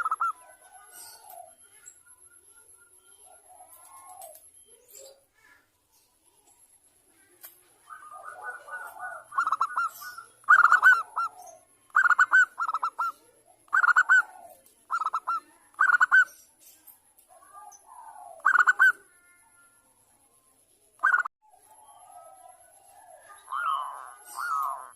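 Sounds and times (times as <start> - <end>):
dove cooing: 0.0 - 1.8, 3.1 - 5.2, 7.2 - 16.4, 17.3 - 19.4, 21.0 - 24.9.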